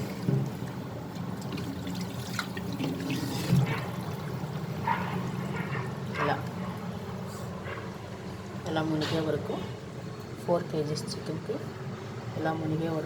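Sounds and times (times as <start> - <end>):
water pouring and sloshing in pot: 0.0 - 6.8.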